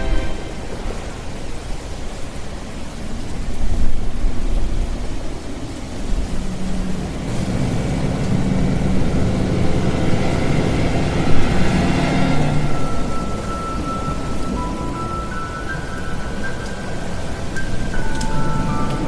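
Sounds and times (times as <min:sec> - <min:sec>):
rain: 0:00.0 - 0:19.0
low sustained tones: 0:07.3 - 0:19.0.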